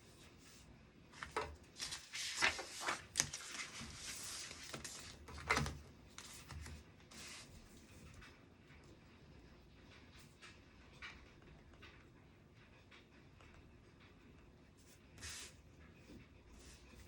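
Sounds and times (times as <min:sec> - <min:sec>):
rustles and clicks on a desk: 0:01.2 - 0:08.4.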